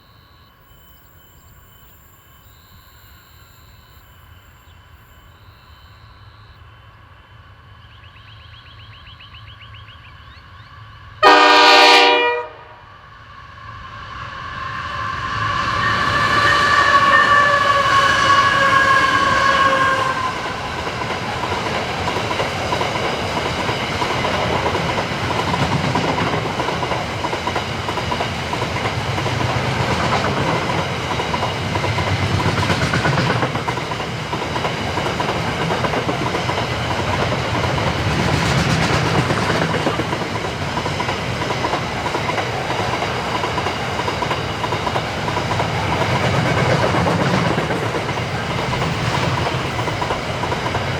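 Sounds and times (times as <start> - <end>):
locomotive horn chord: 11.2 - 12.8, 16.5 - 20.4
train wheels clattering over rails: 15.9 - 50.9.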